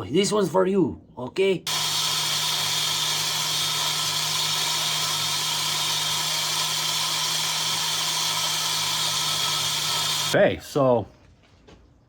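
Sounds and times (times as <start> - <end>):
valve seat grinder running: 1.7 - 10.4.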